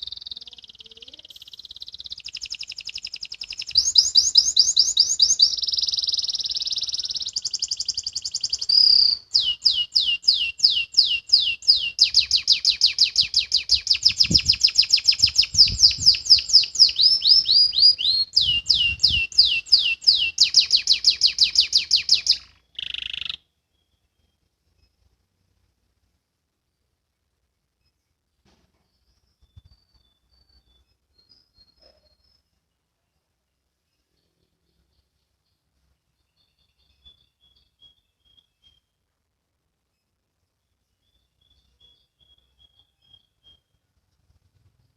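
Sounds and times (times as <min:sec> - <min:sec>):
canary singing trills: 0:00.0 - 0:25.0, 0:28.8 - 0:32.9, 0:34.0 - 0:39.0, 0:40.7 - 0:44.3.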